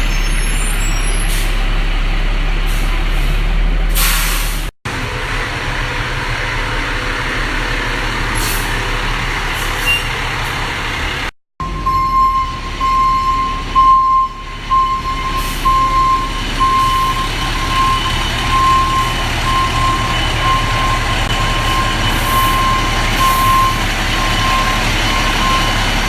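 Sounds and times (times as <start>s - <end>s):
truck engine rumbling: 0.0s - 26.0s
truck backup alarm beeping: 11.6s - 26.0s.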